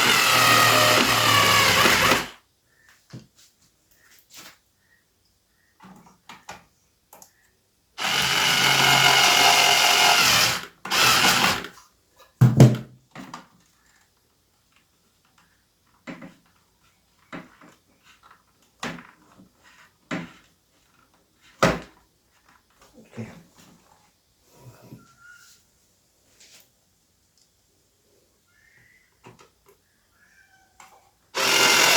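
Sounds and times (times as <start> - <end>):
electric screwdriver motor: 0.0 - 2.4, 8.0 - 11.7, 31.4 - 31.9.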